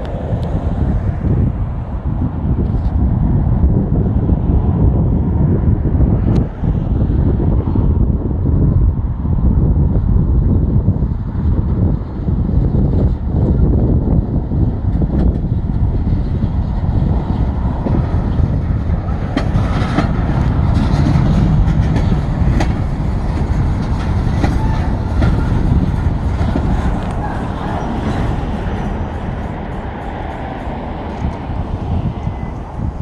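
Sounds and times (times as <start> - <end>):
freight train rumbling: 0.0 - 33.0
wheels clicking over rail joints: 14.9 - 31.7.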